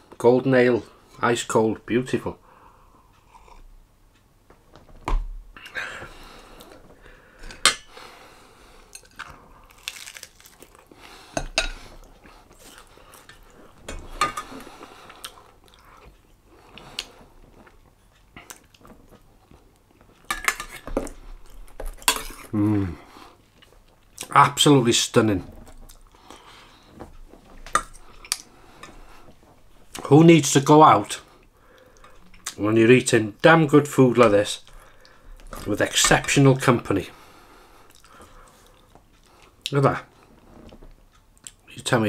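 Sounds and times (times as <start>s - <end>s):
person chewing food: 3.2s - 3.7s, 8.6s - 24.3s, 25.6s - 30.0s, 37.8s - 39.7s.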